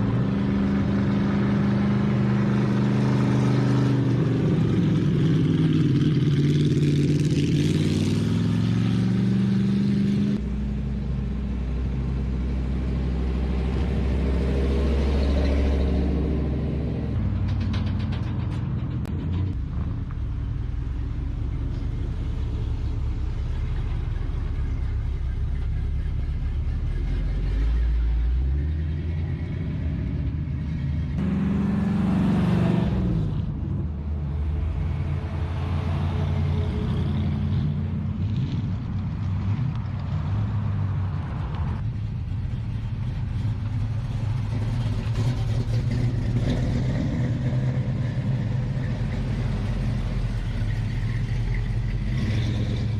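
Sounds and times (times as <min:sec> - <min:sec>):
cars driving past: 0:00.0 - 0:52.9.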